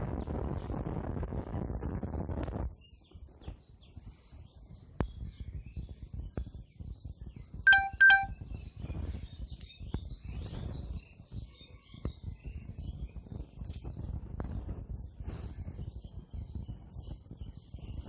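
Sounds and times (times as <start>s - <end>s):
small birds chirping: 0.0s - 18.0s
short electronic beeps: 7.7s - 8.4s.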